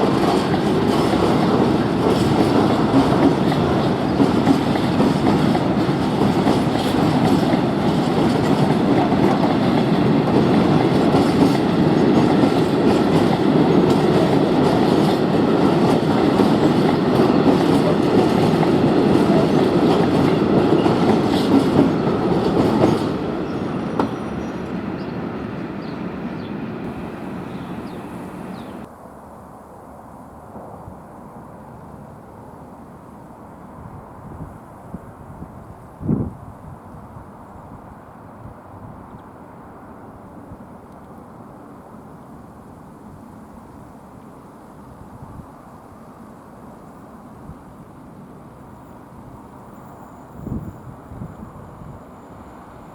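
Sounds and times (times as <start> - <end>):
train wheels clattering on rails: 0.0 - 28.9.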